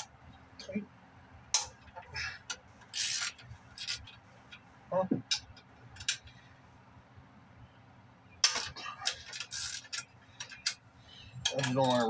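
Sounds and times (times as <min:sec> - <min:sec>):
hand tools clicking on metal: 0:11.4 - 0:12.0.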